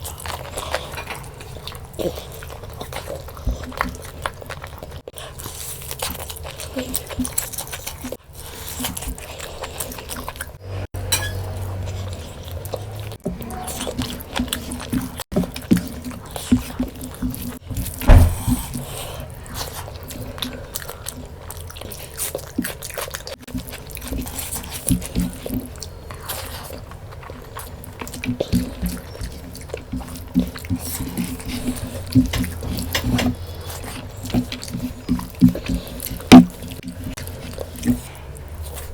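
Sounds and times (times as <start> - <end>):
chewing with mouth smacks: 0.0 - 38.9
loud thump: 18.0 - 18.7.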